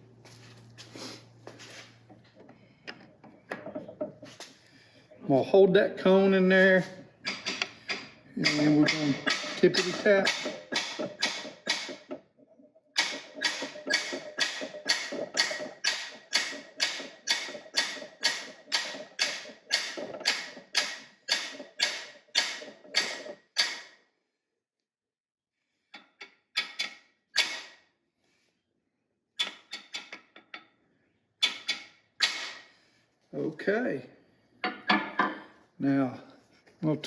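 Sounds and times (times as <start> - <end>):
hammer tapping on metal: 7.3 - 12.1.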